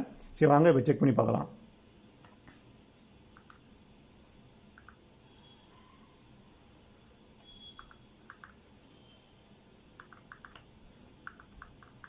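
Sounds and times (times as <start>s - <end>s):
low room hiss: 0.0s - 12.0s.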